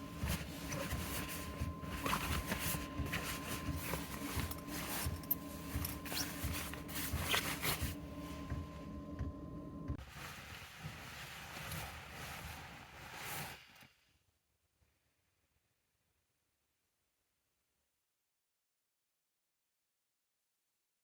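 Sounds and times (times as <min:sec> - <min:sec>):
hands kneading bread dough: 0:00.0 - 0:08.9
faint steady hum: 0:00.0 - 0:14.1.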